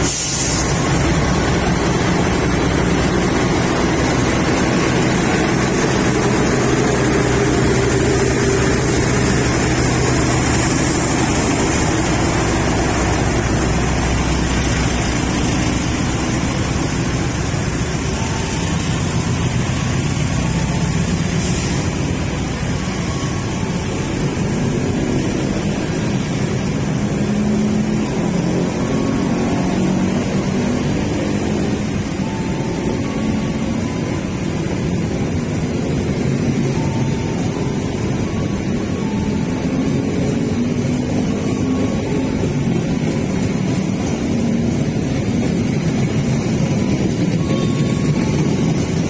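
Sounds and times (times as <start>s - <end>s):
train motor hum: 0.0s - 49.0s
train wheels rumbling on rails: 0.0s - 49.0s.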